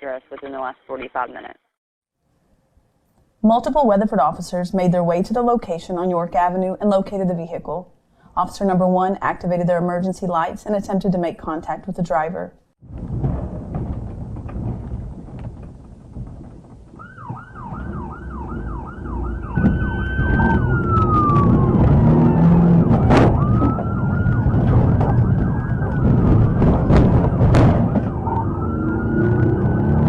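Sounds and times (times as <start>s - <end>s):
vehicle engine and road noise: 12.9s - 30.0s
police siren yelp and wail: 17.0s - 30.0s.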